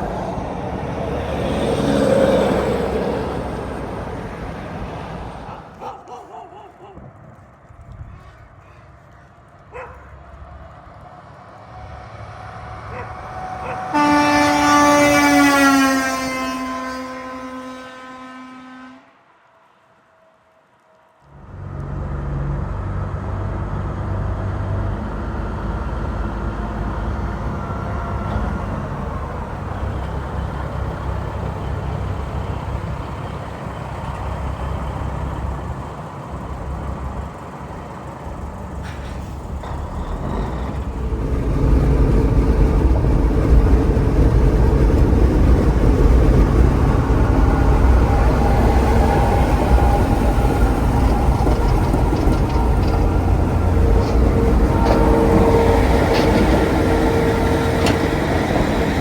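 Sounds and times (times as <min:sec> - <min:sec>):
heavy vehicle engine running: 0:21.3 - 0:59.0.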